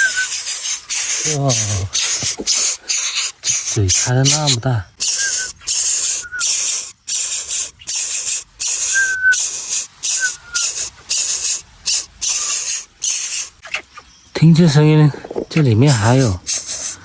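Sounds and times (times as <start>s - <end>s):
faint thin whistled notes: 0.0s - 0.6s, 5.0s - 6.8s, 8.7s - 10.8s
nestling bird raspy hissing calls: 0.0s - 14.3s, 14.9s - 17.0s.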